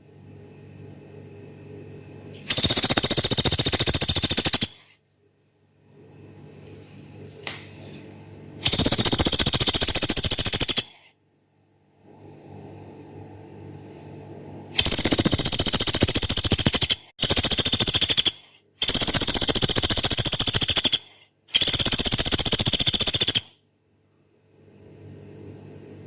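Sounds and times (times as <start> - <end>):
woodpecker rattling trills: 2.5 - 4.9, 8.6 - 11.0, 14.8 - 23.5.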